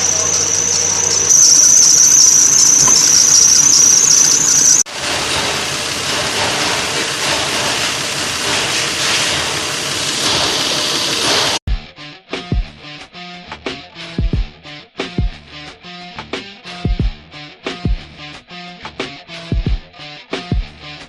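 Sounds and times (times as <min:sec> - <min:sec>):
car engine running: 0:00.0 - 0:11.6
drive belt squealing: 0:00.0 - 0:11.6.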